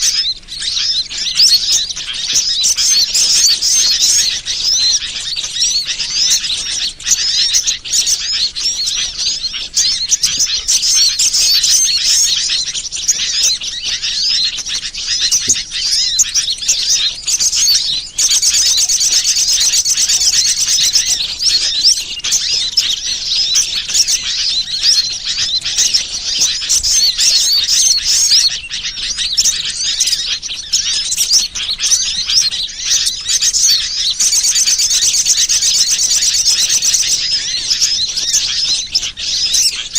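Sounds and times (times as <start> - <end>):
fast repeated bird notes: 0.0 - 39.9
small birds chirping and trilling: 0.0 - 39.9.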